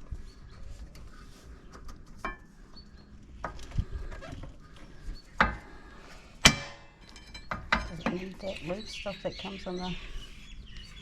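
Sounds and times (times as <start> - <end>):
metal clinks and knocks: 6.4 - 8.2.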